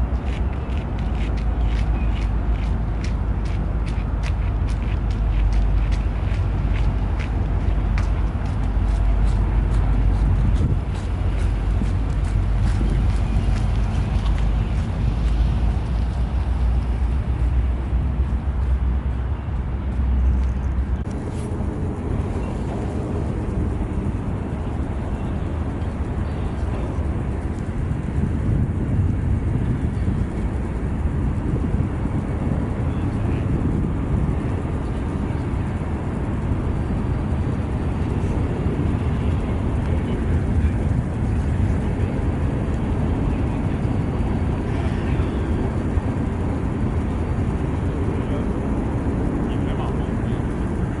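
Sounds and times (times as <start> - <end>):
diesel locomotive drone: 0.0 - 51.0
freight cars rumbling on rails: 0.0 - 51.0.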